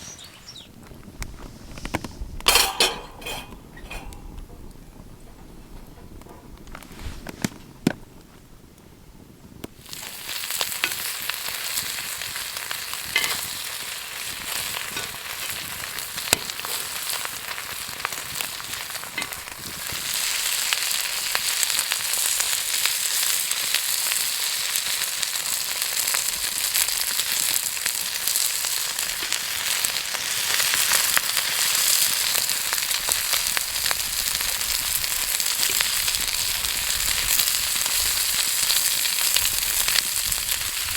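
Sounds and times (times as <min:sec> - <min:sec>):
meat sizzling on a grill: 0:09.8 - 0:40.9.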